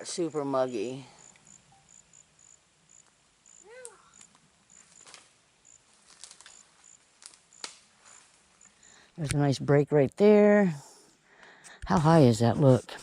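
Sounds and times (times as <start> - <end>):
faint insect chirping: 0.0 - 9.9.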